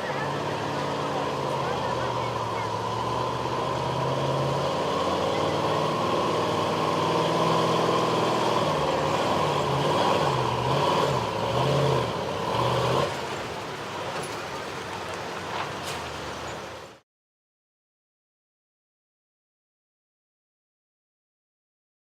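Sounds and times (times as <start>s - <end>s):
truck engine at full throttle: 0.0s - 17.0s.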